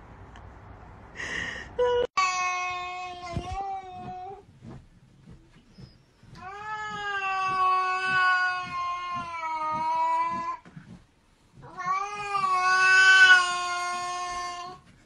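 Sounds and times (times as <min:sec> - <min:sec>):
cat yowling: 0:11.6 - 0:14.8.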